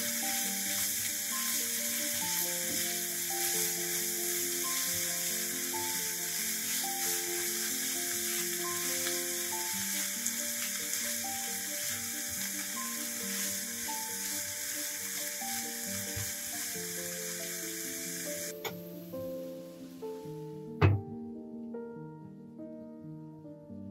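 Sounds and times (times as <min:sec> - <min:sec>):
spatula stirring: 0:00.0 - 0:17.0
vegetables sizzling in a frying pan: 0:00.0 - 0:20.3
slow background music: 0:00.0 - 0:23.9.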